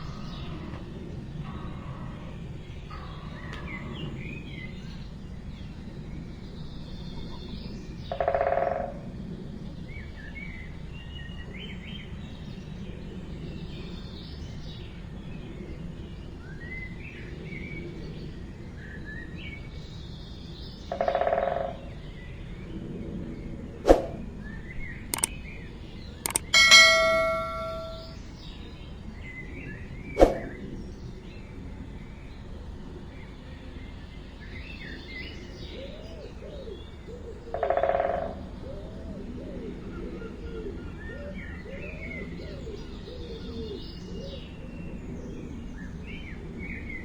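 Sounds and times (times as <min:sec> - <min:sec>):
sharp clicks: 0:26.3 - 0:28.1.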